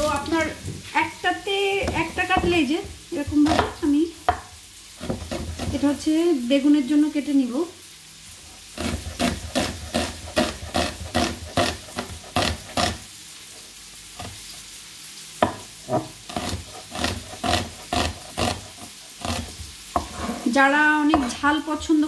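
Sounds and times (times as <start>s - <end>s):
knife chopping on cutting board: 1.8s - 5.9s, 8.8s - 13.0s, 15.4s - 20.4s, 21.1s - 21.5s.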